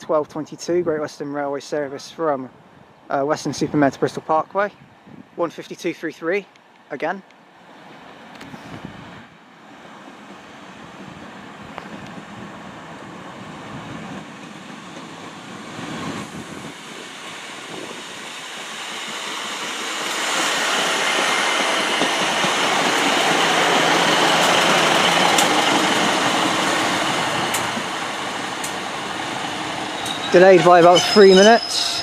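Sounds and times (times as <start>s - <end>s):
diesel railcar engine and wheels: 0.0s - 32.0s
sharp clicks: 24.4s - 25.8s, 28.6s - 28.8s.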